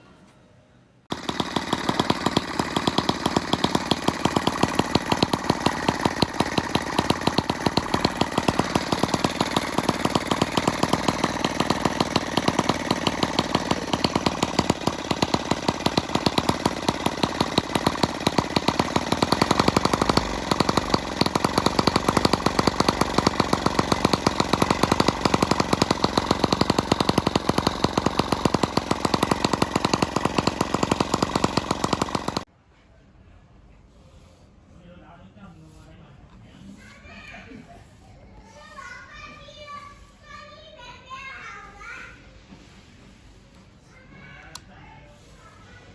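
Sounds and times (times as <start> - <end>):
small model engine running: 1.1 - 32.5, 44.1 - 45.9.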